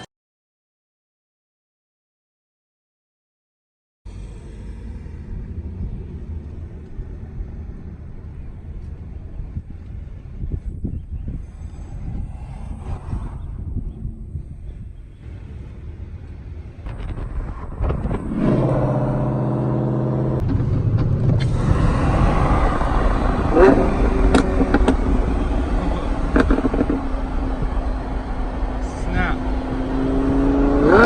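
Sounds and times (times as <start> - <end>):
car engine running: 13.9 - 31.0.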